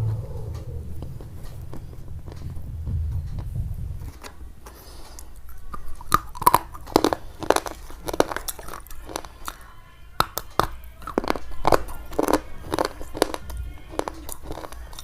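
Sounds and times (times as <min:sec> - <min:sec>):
low rumble: 0:00.0 - 0:06.9
crunching and chewing: 0:04.1 - 0:15.0.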